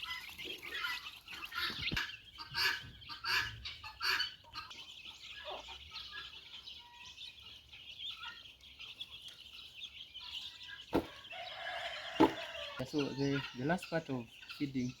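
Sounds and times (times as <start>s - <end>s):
poultry clucks: 0.0s - 15.0s
poultry peeping and chirping: 0.0s - 15.0s.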